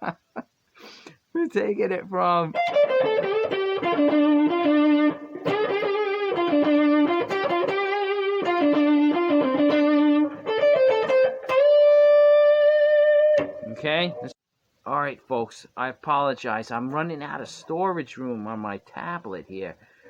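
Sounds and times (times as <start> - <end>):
electric guitar blues lick: 2.5 - 14.3.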